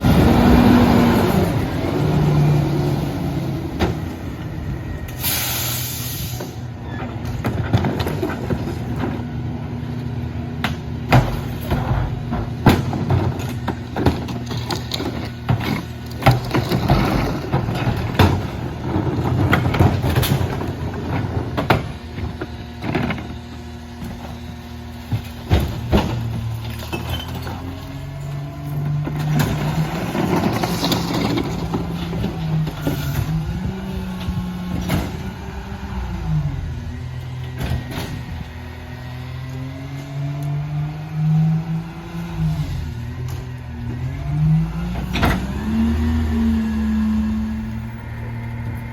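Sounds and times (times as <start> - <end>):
garbage truck diesel engine: 0.0 - 48.9
sharp air hiss: 5.1 - 6.6.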